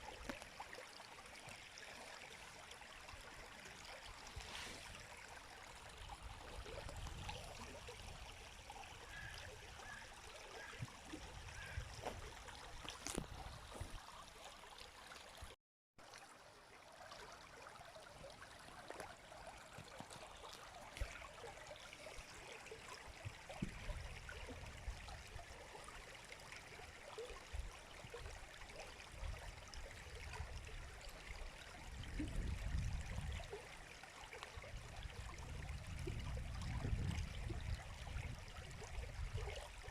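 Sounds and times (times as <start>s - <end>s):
river flowing: 0.0s - 31.8s
water trickling flicks: 0.0s - 39.9s.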